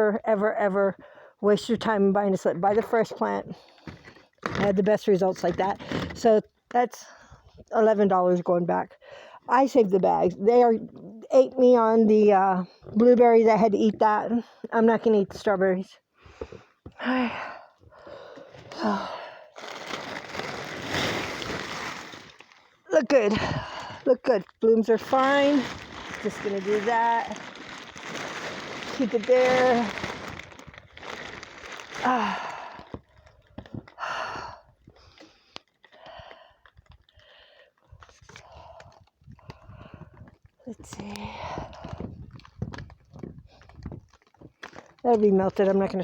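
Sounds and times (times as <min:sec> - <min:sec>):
person breathing: 0:01.0 - 0:01.4, 0:09.0 - 0:09.5, 0:16.1 - 0:19.6, 0:34.0 - 0:40.3
woman sighing: 0:16.9 - 0:19.6, 0:32.0 - 0:33.0.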